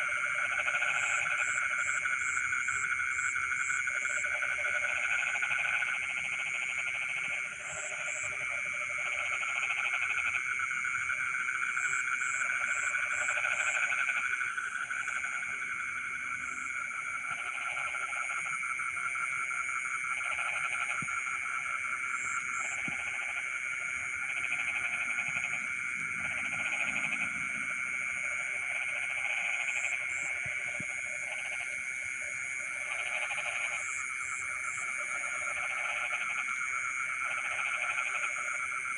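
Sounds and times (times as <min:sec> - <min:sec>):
frogs trilling: 0:00.0 - 0:38.9
pulsed frog croaks: 0:00.0 - 0:38.9.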